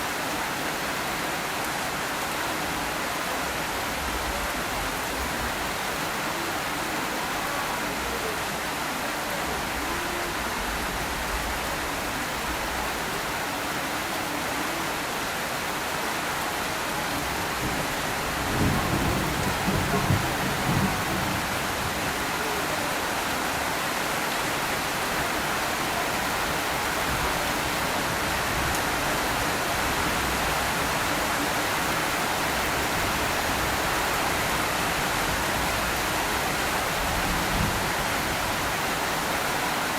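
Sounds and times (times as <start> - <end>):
steady rain falling: 0.0 - 39.9
thunder rumble: 17.6 - 22.0.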